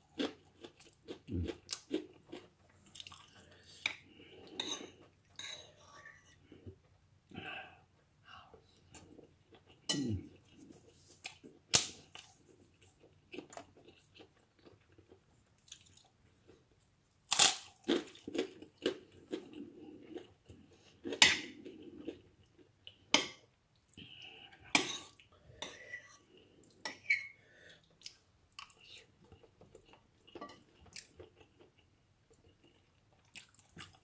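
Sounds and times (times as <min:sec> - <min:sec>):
soft irregular chewing: 0:00.0 - 0:16.9, 0:17.7 - 0:34.0
loud crunches of fried food: 0:17.3 - 0:18.5.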